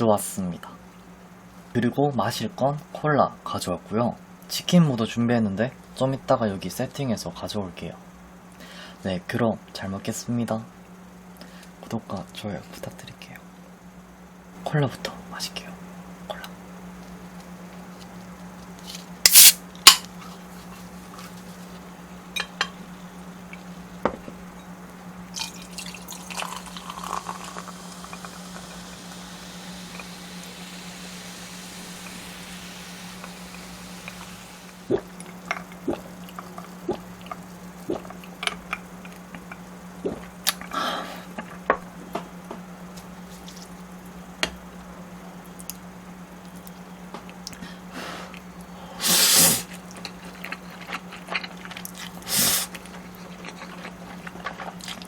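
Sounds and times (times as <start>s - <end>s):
low electrical hum: 0.0s - 55.0s
cola pouring and fizzing: 25.3s - 35.1s
clicks and drips of drinking: 25.4s - 40.7s.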